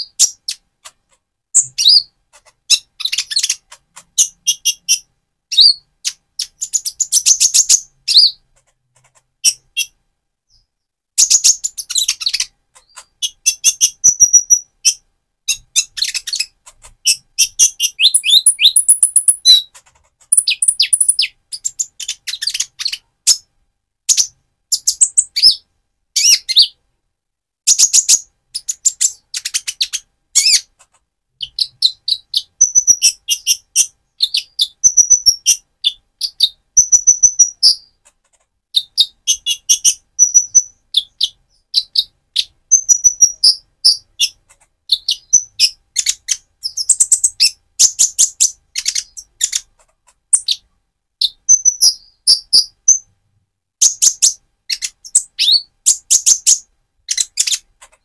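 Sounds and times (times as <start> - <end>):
bird chirping and trilling: 1.6 - 2.1, 2.7 - 8.4, 11.2 - 19.7, 20.3 - 23.4, 24.1 - 26.8, 27.7 - 30.7, 31.4 - 38.0, 38.8 - 49.7.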